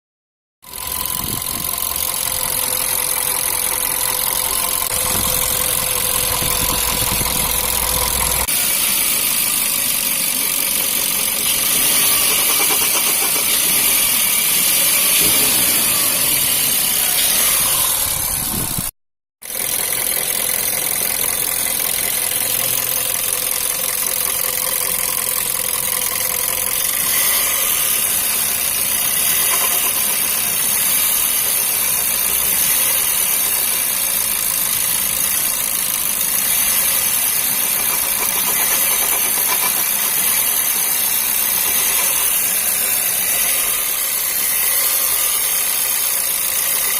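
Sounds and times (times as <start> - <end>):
engine beating noise: 0.7 - 9.2
car engine revving: 0.8 - 9.3, 11.2 - 18.6.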